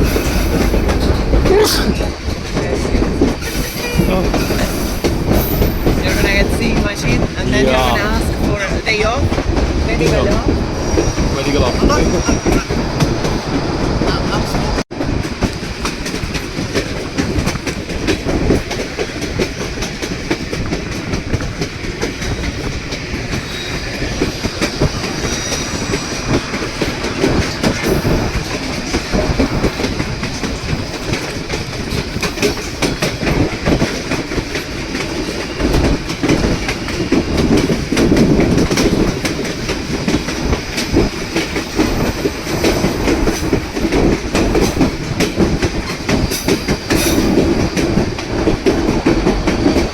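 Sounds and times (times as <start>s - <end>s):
wheels clicking over rail joints: 0.0s - 11.6s, 14.9s - 49.9s
train car rumbling and rattling: 0.0s - 49.9s.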